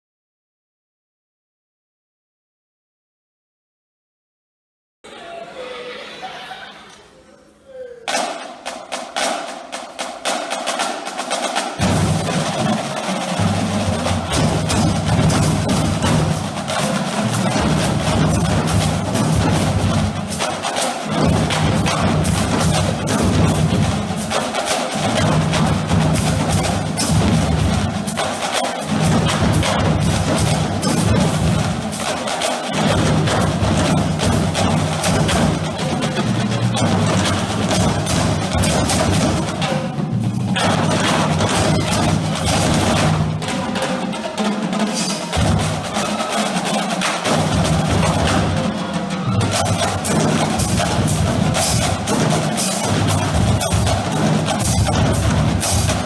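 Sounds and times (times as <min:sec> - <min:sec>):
snare and tenor drums: 0:08.0 - 0:56.0
bass drums: 0:25.0 - 0:32.1, 0:49.2 - 0:56.0.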